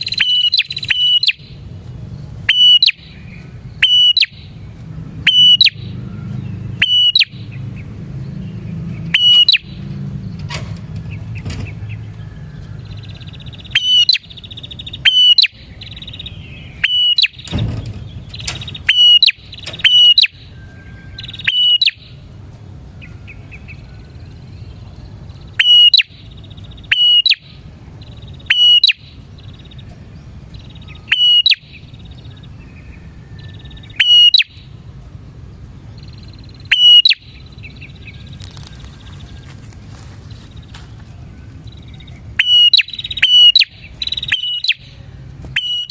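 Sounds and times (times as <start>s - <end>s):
faint buzzy bird trills: 0.0s - 45.9s
bird sharp short calls: 9.1s - 9.8s.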